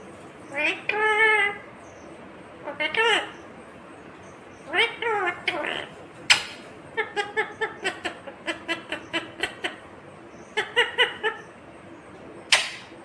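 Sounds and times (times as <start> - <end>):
parrot squawking: 0.5 - 1.7, 2.6 - 3.4, 4.6 - 9.9, 10.5 - 11.5, 12.5 - 12.9.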